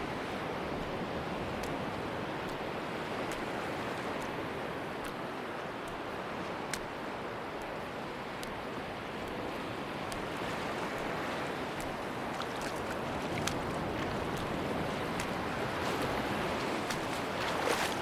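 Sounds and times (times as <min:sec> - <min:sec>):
ocean surf washing on beach: 0:00.0 - 0:18.0
faint small clicks: 0:05.0 - 0:05.2, 0:07.6 - 0:08.6, 0:09.2 - 0:11.2.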